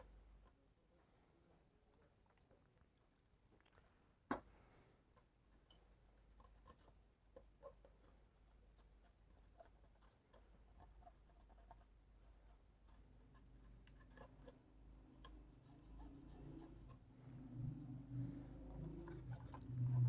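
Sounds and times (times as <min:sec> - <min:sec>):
scratching and rubbing circuit board: 0:08.7 - 0:20.0
low hum: 0:16.2 - 0:20.0.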